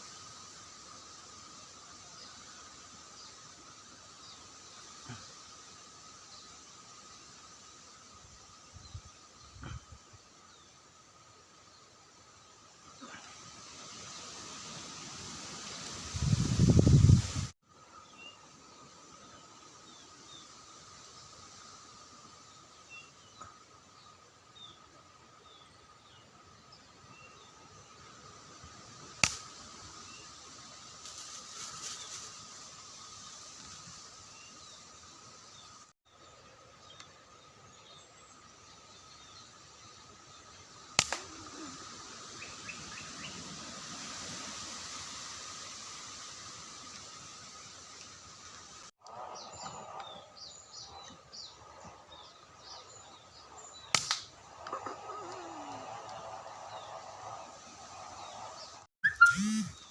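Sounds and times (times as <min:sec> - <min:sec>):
gunshot: 0:41.0 - 0:41.3
sharp gunshot: 0:41.0 - 0:41.3, 0:53.9 - 0:54.3
small birds chirping: 0:45.0 - 0:59.9.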